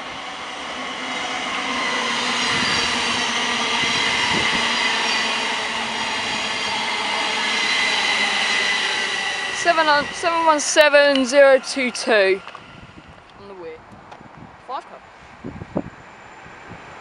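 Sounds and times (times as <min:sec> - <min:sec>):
electric train passing: 0:00.0 - 0:17.0
high tones: 0:02.3 - 0:13.6.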